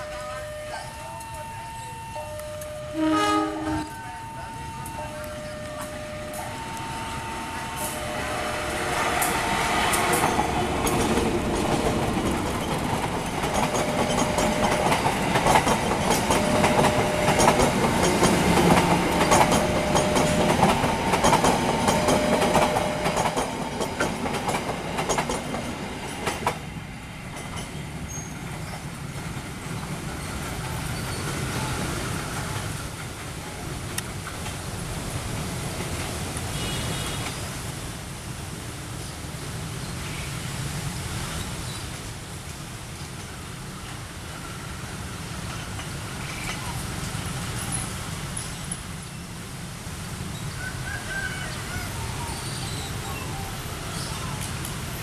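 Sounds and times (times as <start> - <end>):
two-tone warning signal: 0.0 - 9.2, 13.6 - 15.2, 16.2 - 17.9, 19.1 - 21.0, 21.8 - 23.4
train wheels clattering: 9.0 - 26.7.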